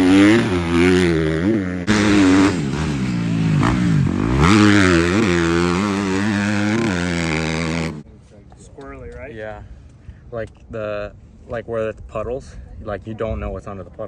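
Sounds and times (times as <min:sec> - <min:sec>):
motocross bike engine revving: 0:00.0 - 0:08.0.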